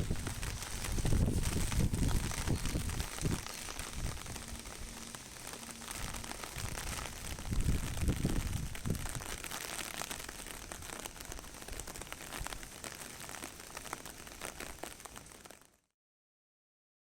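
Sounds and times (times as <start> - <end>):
wind gusts buffeting microphone: 0.0 - 5.1, 5.9 - 9.5
heavy rain spattering: 0.0 - 15.7.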